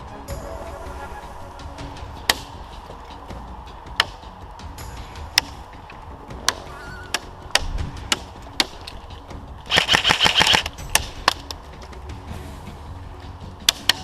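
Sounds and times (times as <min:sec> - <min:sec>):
airsoft gun shots: 0:09.7 - 0:11.4.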